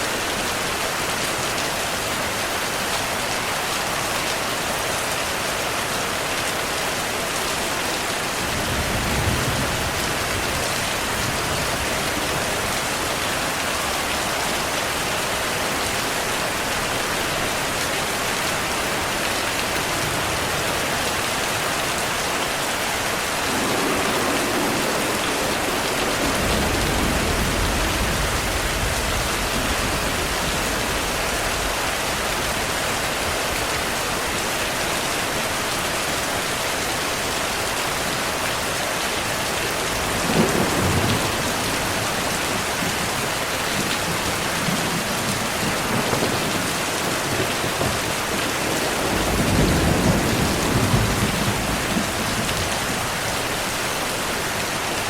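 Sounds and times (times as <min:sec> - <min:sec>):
heavy rain pouring: 0:00.0 - 0:55.0
thunder rumbling: 0:23.0 - 0:32.4, 0:39.9 - 0:53.4
sharp thunderclap: 0:23.4 - 0:31.2.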